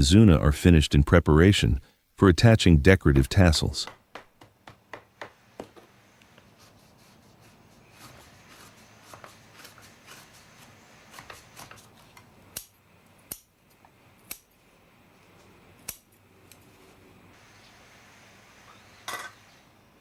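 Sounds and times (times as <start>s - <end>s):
scissors snipping: 15.8s - 16.7s.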